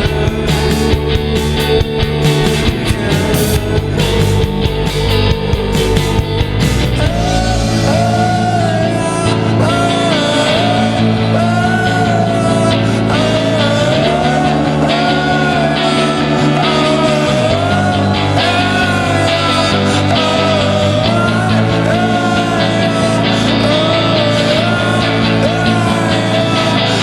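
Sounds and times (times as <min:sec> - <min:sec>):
psychedelic rock band music: 0:00.0 - 0:27.0.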